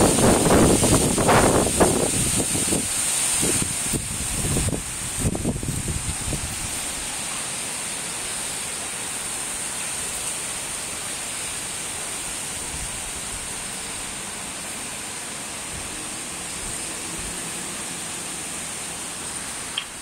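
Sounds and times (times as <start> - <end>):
storm wind rushing: 0.0 - 6.9.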